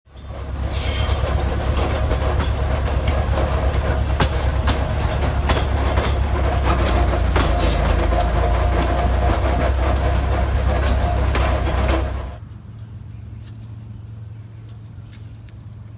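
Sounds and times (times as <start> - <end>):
rail vehicle rumbling: 0.0 - 12.7
sharp track clicks: 0.1 - 12.4.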